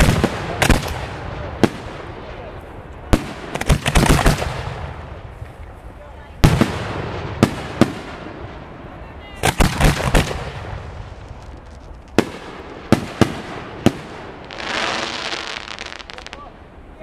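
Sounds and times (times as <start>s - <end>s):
fireworks bangs: 0.0s - 5.6s, 6.4s - 16.6s
fireworks hissing: 14.4s - 16.5s.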